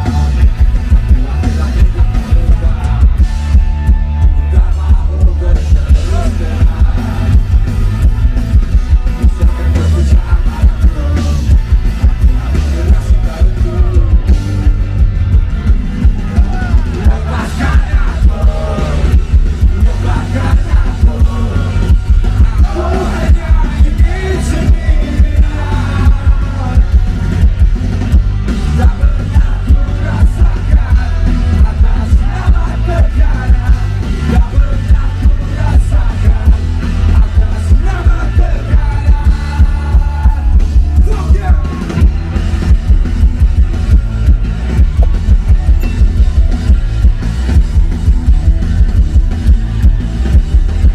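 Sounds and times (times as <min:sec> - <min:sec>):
man singing: 0:00.0 - 0:15.0, 0:16.1 - 0:27.6, 0:28.5 - 0:42.1
live rock band playing: 0:00.0 - 0:50.9.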